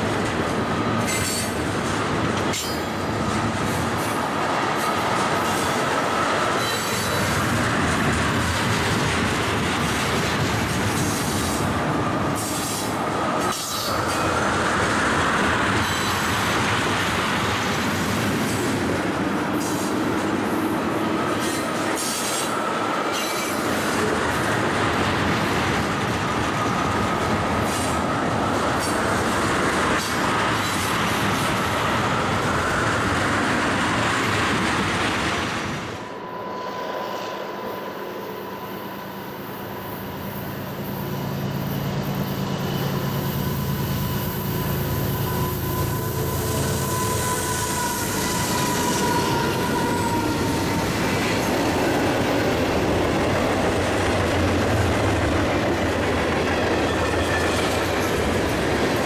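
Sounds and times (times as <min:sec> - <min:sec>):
rail joint clicks: 0:00.0 - 0:32.6
steel wheels rumbling on rail: 0:00.0 - 0:59.0
high wheel squeal: 0:36.0 - 0:51.4.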